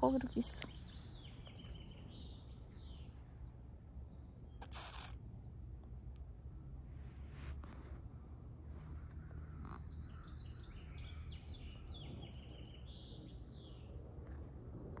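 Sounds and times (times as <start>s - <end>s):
songbird singing: 0.0s - 6.7s, 8.0s - 15.0s.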